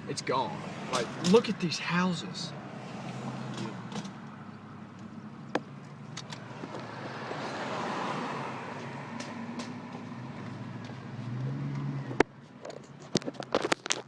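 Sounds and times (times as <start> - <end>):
car engine and road noise: 0.0 - 14.0
sharp clicks and knocks: 3.5 - 4.3, 8.8 - 10.1, 12.1 - 14.0.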